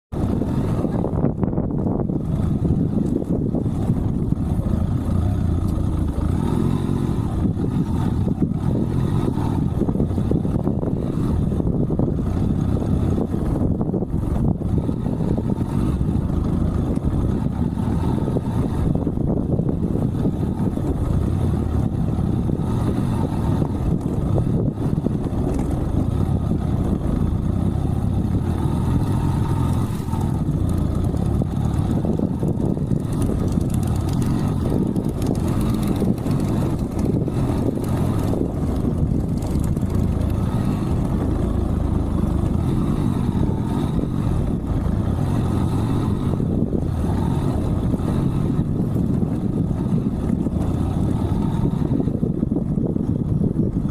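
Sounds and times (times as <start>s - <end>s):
motorcycle engine running: 0.1s - 53.9s.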